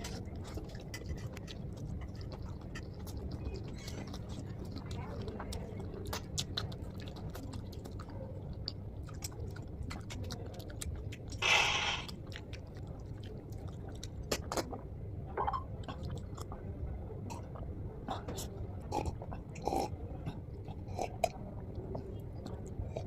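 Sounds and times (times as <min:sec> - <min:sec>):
close chewing of food: 0:00.0 - 0:23.0
loud hissing sound: 0:11.4 - 0:12.1.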